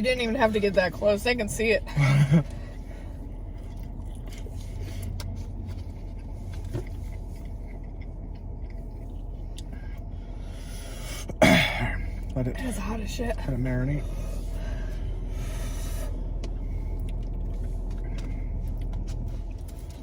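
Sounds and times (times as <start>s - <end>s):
car engine idling: 0.0s - 20.0s
chewing noises: 2.4s - 10.1s, 14.1s - 20.0s.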